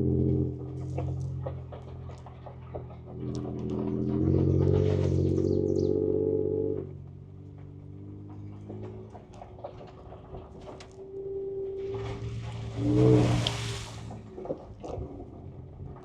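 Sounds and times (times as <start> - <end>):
car engine heard from inside cabin: 0.0 - 16.0
small knocks and rattles: 7.0 - 11.0.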